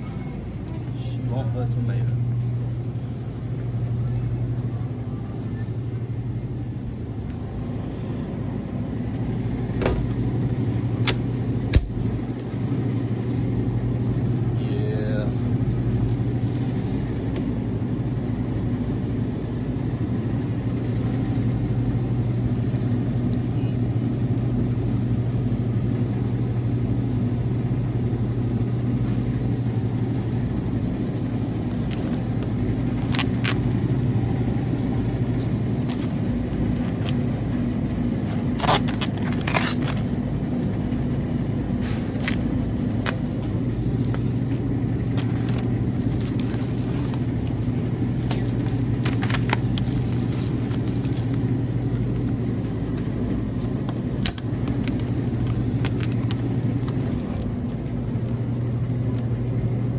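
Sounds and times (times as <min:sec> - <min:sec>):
low mechanical hum: 0:00.0 - 0:59.9
sharp clicks and clatters: 0:52.3 - 0:59.3.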